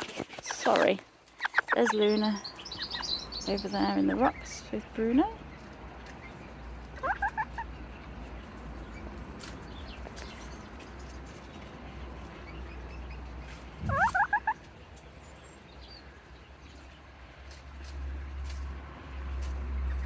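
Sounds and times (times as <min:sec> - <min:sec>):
chicken calling sharp notes: 0:07.0 - 0:07.7, 0:13.8 - 0:14.6.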